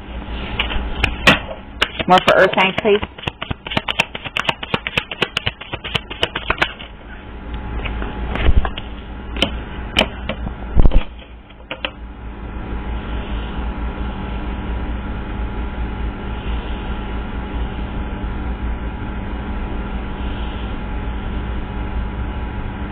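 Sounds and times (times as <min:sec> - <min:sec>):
steady low hum: 0:00.0 - 0:22.9
cards tapping and thumping: 0:01.1 - 0:06.9
cards being shuffled: 0:01.8 - 0:06.9.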